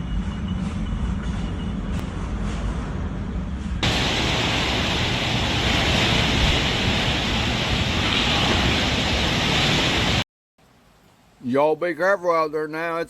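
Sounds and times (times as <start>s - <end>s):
floodwater rushing: 3.8s - 10.2s.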